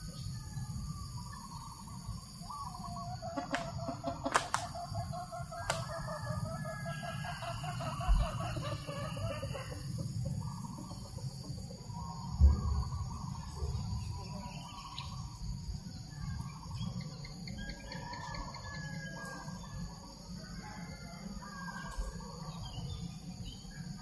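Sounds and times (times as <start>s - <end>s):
high insect drone: 0.0s - 24.0s
chicken calling: 2.8s - 11.1s
sharp clicks: 3.5s - 4.7s.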